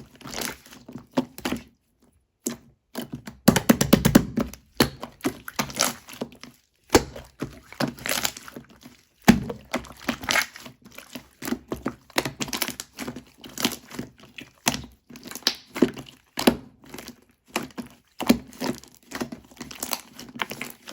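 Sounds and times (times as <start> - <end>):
slime squeezed by hand: 4.8 - 11.1.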